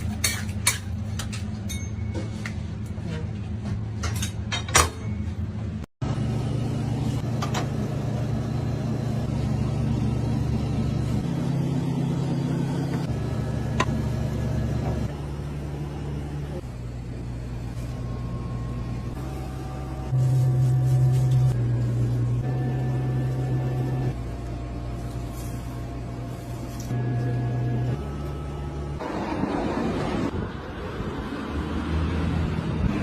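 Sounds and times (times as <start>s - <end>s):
machinery humming: 5.4s - 30.8s.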